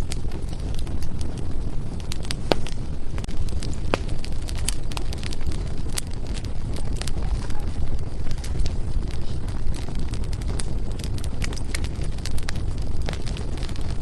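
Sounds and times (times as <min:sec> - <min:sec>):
fire flames rumbling: 0:00.0 - 0:14.0
firewood crackling and popping: 0:00.0 - 0:14.0.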